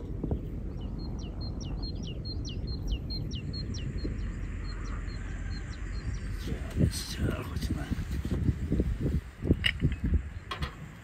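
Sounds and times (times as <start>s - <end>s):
songbird singing: 0.0s - 11.0s
steady low rumble: 0.0s - 11.0s.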